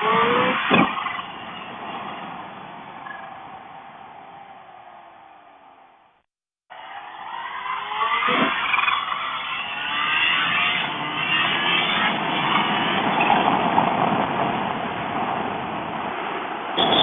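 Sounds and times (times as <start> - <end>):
wind rush: 12.2 - 17.0.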